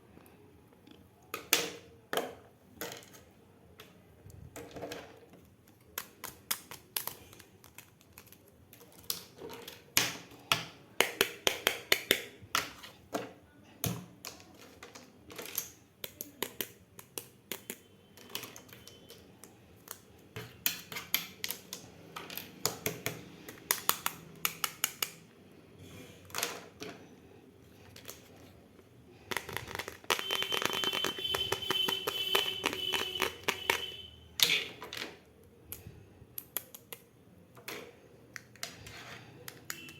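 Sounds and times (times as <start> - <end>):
plastic toy pieces clicking: 14.2 - 25.2, 29.3 - 33.8, 34.4 - 37.1
rustling and scraping: 38.6 - 39.4.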